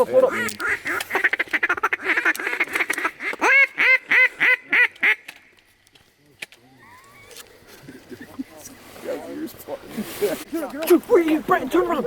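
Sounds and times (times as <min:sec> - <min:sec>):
duck call hen quacks: 0:00.3 - 0:05.2
duck call rattling chatter: 0:00.3 - 0:05.3.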